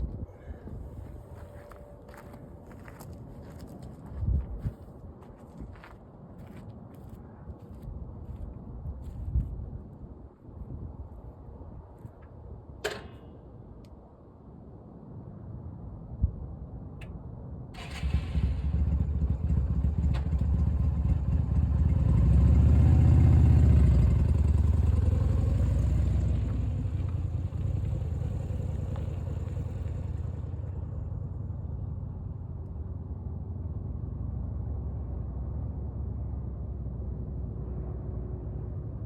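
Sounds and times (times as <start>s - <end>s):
engine starting and rumbling: 17.8s - 32.4s.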